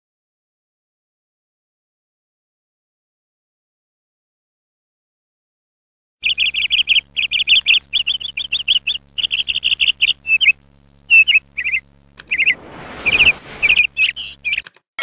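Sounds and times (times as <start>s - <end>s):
small bird chirping: 6.2s - 14.8s.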